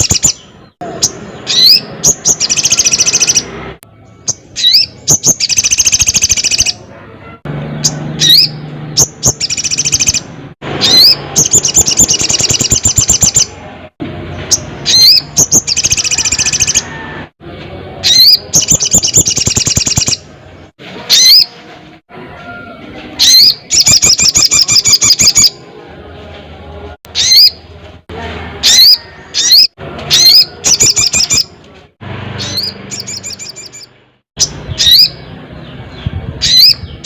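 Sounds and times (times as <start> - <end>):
bird singing with trills: 0.0 - 6.8, 7.8 - 13.6, 14.4 - 17.0, 18.0 - 20.3, 23.2 - 25.6, 27.1 - 27.6, 28.6 - 31.6, 32.4 - 37.0.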